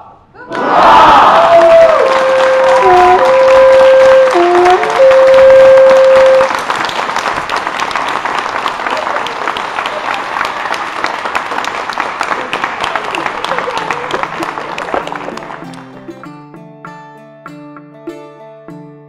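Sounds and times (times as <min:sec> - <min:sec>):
audience applause: 0:00.5 - 0:16.1
loud held musical tone: 0:01.7 - 0:06.6.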